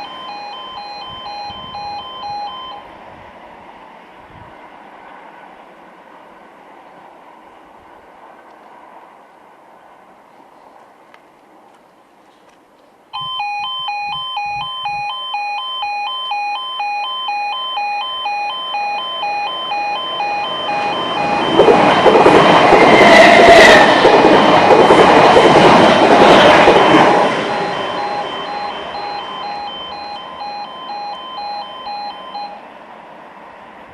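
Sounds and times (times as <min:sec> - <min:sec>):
level crossing two-tone alarm: 0:00.0 - 0:02.9, 0:13.1 - 0:32.6
train wheels rushing on rails: 0:18.1 - 0:33.9.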